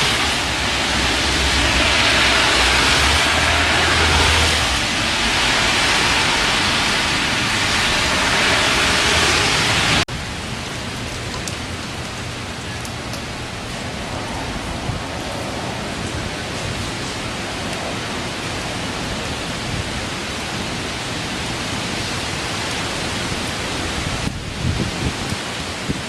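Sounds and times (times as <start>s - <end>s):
heavy rain: 0.0s - 26.0s
wind buffeting microphone: 13.4s - 22.0s, 23.1s - 26.0s.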